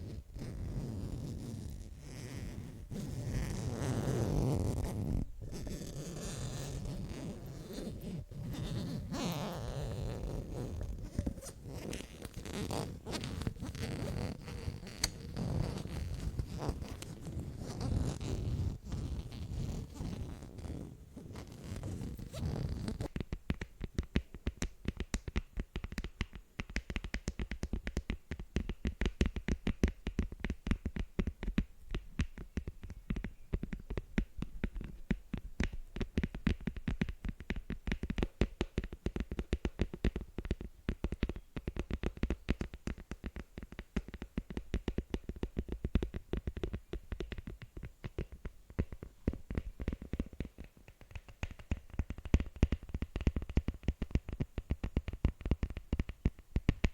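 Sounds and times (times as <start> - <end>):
fingers tapping on a surface: 23.0 - 56.9.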